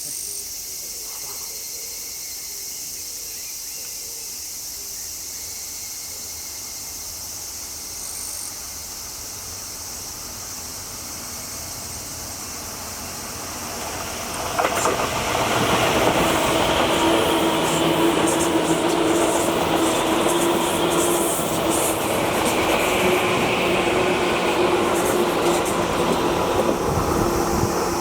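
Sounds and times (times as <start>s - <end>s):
insects trilling: 0.0s - 28.0s
electric train passing: 6.2s - 28.0s.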